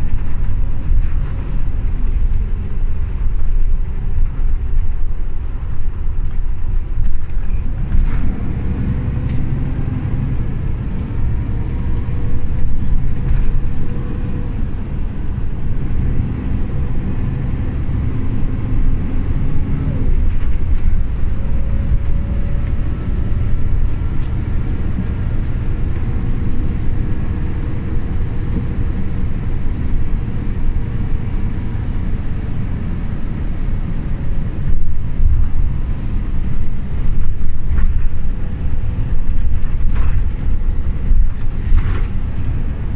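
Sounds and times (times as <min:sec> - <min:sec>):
bus body rattles and clicks: 0:00.0 - 0:42.9
bus engine rumbling: 0:00.0 - 0:42.9.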